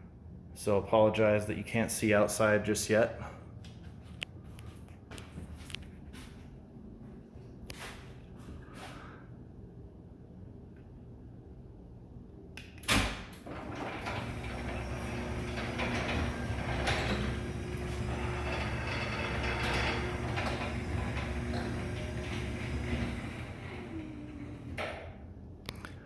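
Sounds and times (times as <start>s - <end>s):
garage door clunk: 12.6s - 25.3s
garage door opener motor hum: 12.7s - 25.4s
door running in tracks: 13.4s - 25.0s.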